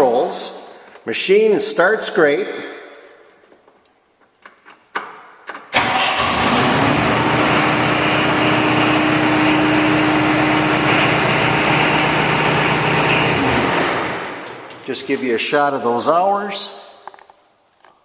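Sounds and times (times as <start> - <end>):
diesel engine starting and running: 5.7 - 14.9.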